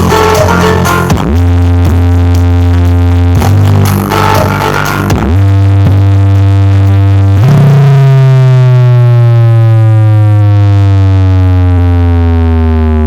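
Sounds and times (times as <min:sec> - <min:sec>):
deep synthesized bass tone: 0:00.0 - 0:13.0.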